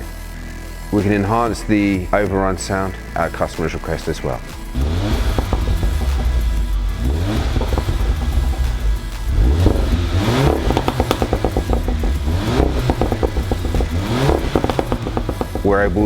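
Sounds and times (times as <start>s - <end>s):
car engine accelerating hard: 4.6s - 16.0s.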